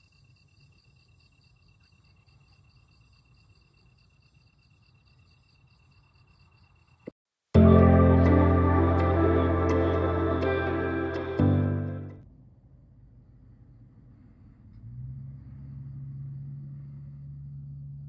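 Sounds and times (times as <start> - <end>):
insect chirping: 0.0 - 7.2.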